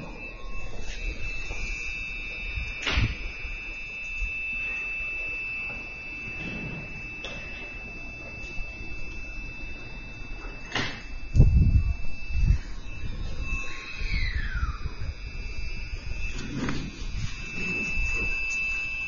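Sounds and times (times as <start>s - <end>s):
high-pitched tone: 0.0s - 19.0s.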